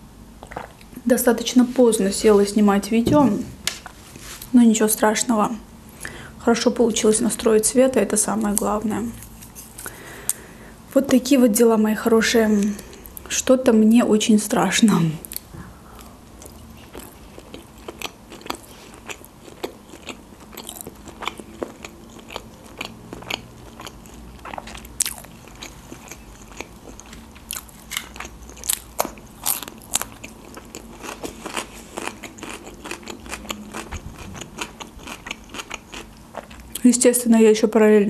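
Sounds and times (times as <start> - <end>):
chewing with wet mouth clicks: 15.3 - 36.8.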